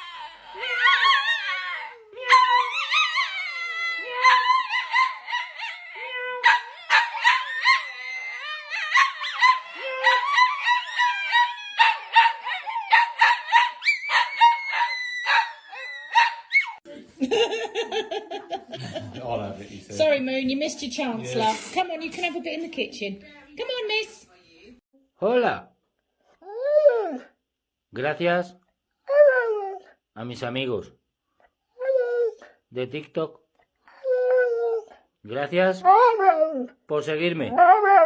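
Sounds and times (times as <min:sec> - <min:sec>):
dog yips: 0:00.0 - 0:16.8
dogs howling and whining: 0:00.0 - 0:16.8, 0:26.4 - 0:27.3, 0:29.1 - 0:29.9, 0:31.8 - 0:32.5, 0:33.9 - 0:35.0, 0:35.8 - 0:36.8, 0:37.5 - 0:38.0.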